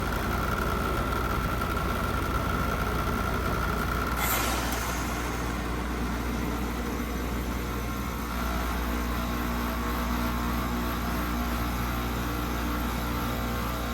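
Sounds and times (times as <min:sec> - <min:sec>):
heat pump hum and whine: 0:00.0 - 0:13.9
brief hiss: 0:04.2 - 0:07.3.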